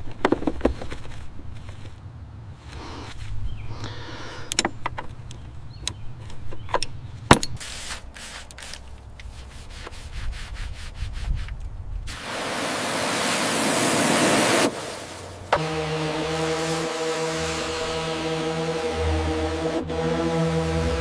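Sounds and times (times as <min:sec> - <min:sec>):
steady hiss: 0:07.6 - 0:19.8
low hum: 0:15.4 - 0:21.0.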